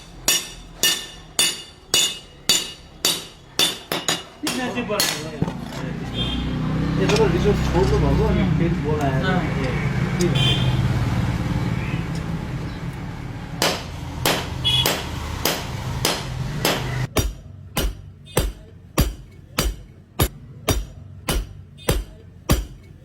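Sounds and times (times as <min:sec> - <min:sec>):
hammer striking metal on anvil: 0:00.0 - 0:05.4, 0:13.6 - 0:23.0.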